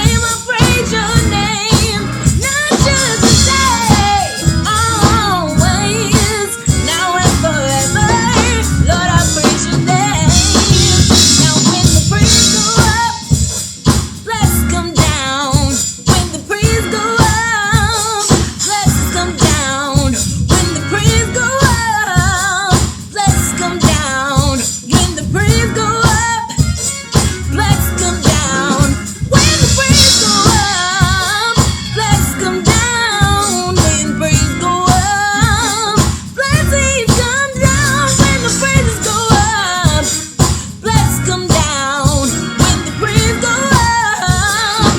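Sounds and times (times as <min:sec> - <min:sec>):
voices singing with vibrato: 0:00.0 - 0:12.8, 0:27.4 - 0:34.3, 0:42.3 - 0:44.9
drum kit beat: 0:00.0 - 0:44.9
tambourine: 0:00.0 - 0:44.9.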